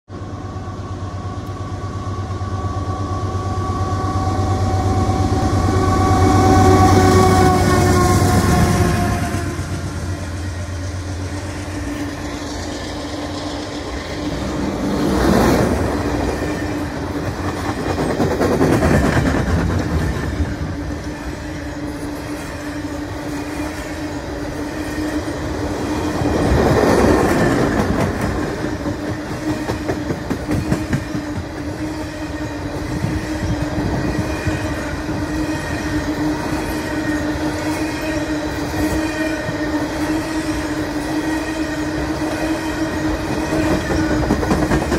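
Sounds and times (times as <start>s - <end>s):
train wheels clattering on rail joints: 13.4s - 20.6s, 26.2s - 31.9s, 43.0s - 44.9s.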